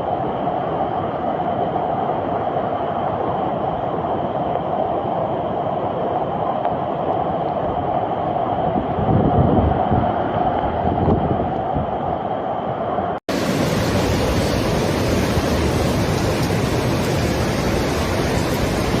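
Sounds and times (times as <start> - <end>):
floodwater rushing: 13.3 - 19.0.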